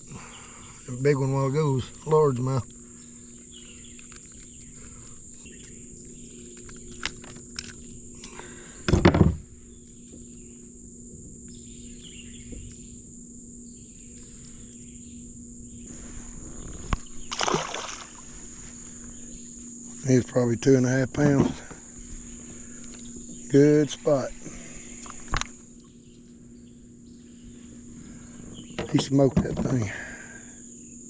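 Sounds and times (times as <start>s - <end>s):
high-pitched insect drone: 0.0s - 31.0s
loud thump: 8.9s - 9.4s.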